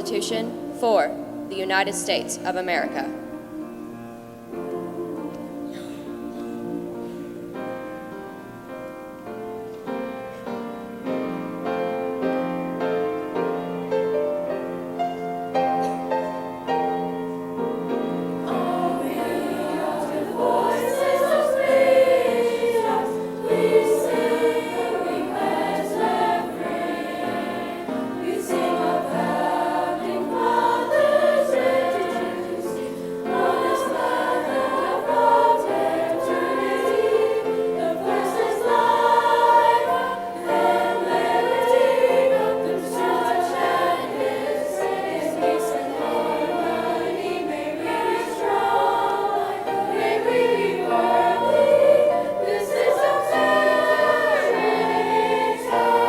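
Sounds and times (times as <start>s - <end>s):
choir singing: 0.0s - 9.0s, 9.8s - 56.0s.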